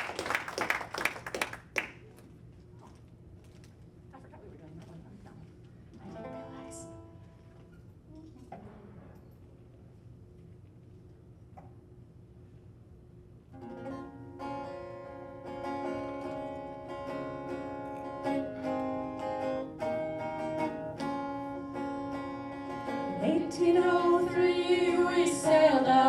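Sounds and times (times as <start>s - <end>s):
plucked string instrument: 13.6s - 26.0s.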